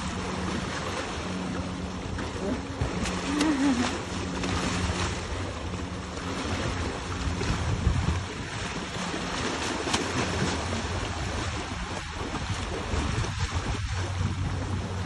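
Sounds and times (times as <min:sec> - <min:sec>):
sea water lapping in shallows: 0:00.0 - 0:15.0
wind buffeting microphone: 0:00.0 - 0:15.0.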